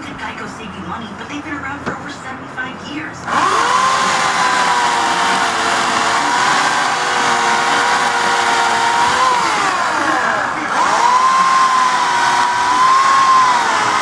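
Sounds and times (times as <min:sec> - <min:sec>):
electric chainsaw whining: 0:03.3 - 0:14.0.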